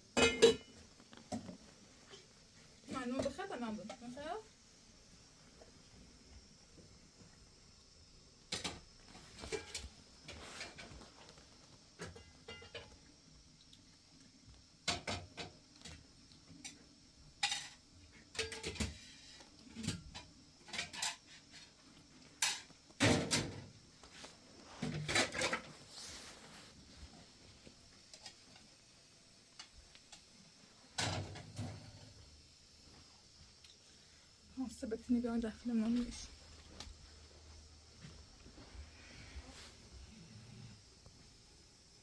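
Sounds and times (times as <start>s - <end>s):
objects knocking and clattering: 0.1s - 1.7s, 8.4s - 11.3s, 11.9s - 13.0s, 14.8s - 16.0s, 17.4s - 21.7s, 22.4s - 23.8s, 24.7s - 25.8s, 31.0s - 32.2s.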